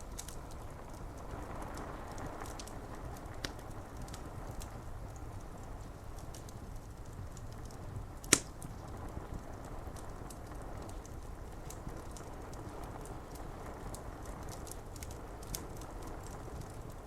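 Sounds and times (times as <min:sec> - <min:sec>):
fire crackling and popping: 0:00.0 - 0:17.0
rain on window glass: 0:00.0 - 0:17.0.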